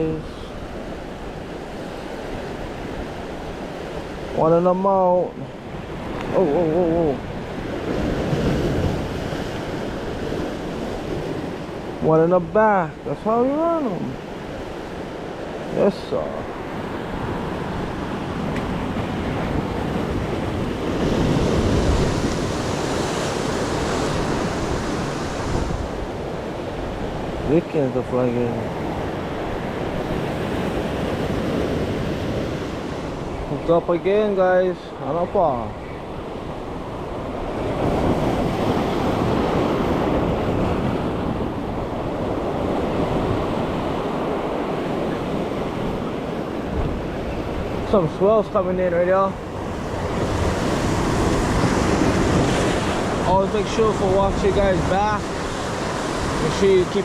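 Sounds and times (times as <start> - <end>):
ocean surf washing on shore: 0.0 - 57.0
wind on microphone: 5.4 - 12.1, 16.4 - 27.5, 35.7 - 57.0.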